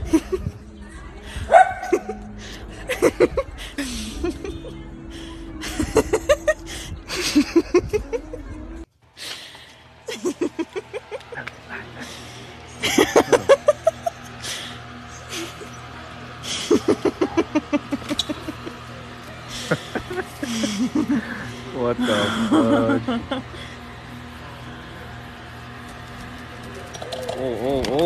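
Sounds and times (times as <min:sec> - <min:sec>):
rapid human laughter: 0:00.0 - 0:00.6, 0:01.8 - 0:04.8, 0:05.6 - 0:08.6, 0:10.1 - 0:23.8.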